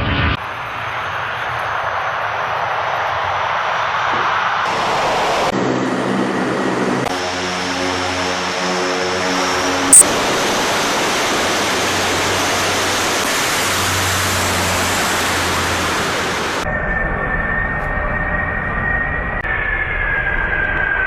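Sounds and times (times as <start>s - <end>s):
military aircraft engines roaring: 0.0s - 21.0s.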